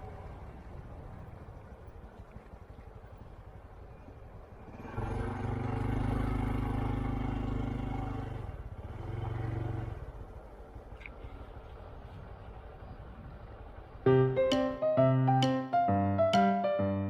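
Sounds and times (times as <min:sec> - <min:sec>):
motor vehicle engine: 0:00.0 - 0:15.1.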